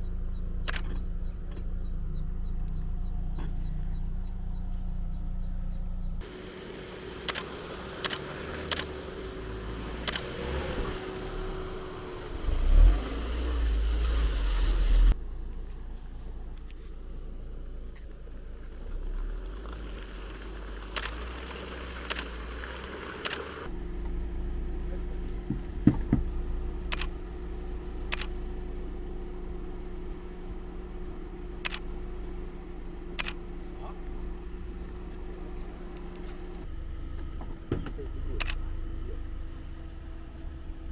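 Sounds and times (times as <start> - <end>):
sharp clicks: 0.0 - 1.8, 7.2 - 9.0, 10.0 - 10.3, 20.9 - 21.4, 22.0 - 22.4, 23.2 - 24.2, 25.0 - 36.7, 38.4 - 38.7
vehicle engine running: 0.0 - 40.9
short sharp clicks: 0.6 - 1.0, 7.2 - 8.9, 10.0 - 10.2, 22.1 - 22.3, 23.2 - 23.5, 26.9 - 27.2, 28.1 - 28.4, 31.6 - 31.9, 33.2 - 33.4
deep rumble: 23.6 - 40.9
knocks: 25.4 - 26.3.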